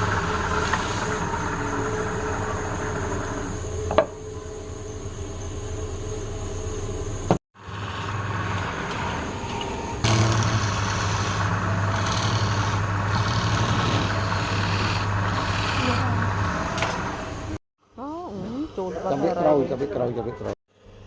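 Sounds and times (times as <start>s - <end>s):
turning tool cutting wood: 0.0s - 9.1s, 10.0s - 17.6s
wood lathe humming: 0.0s - 17.6s.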